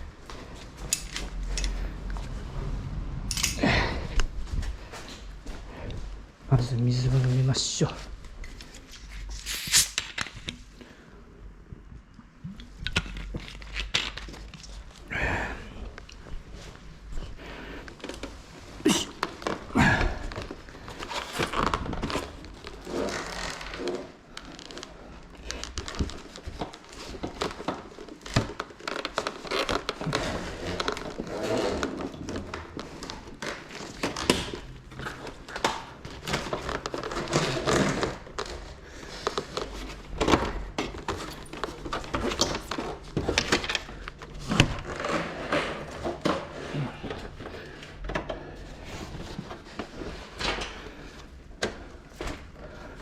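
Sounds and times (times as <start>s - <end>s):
plastic wrap crinkling: 18.1s - 45.5s.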